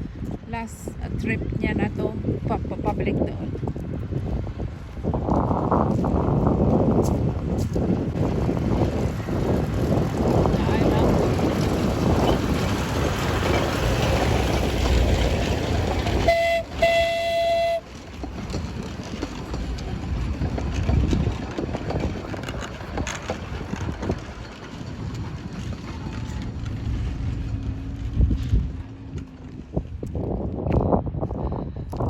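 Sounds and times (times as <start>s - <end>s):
small train rumbling: 0.0s - 32.0s
train horn toots: 16.2s - 17.9s.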